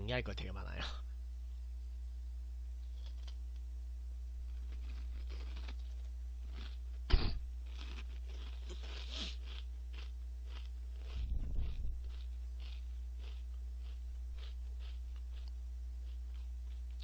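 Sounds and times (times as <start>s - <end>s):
steady low hum: 0.0s - 17.0s
crunchy chewing of crackers: 2.8s - 3.7s, 4.4s - 17.0s.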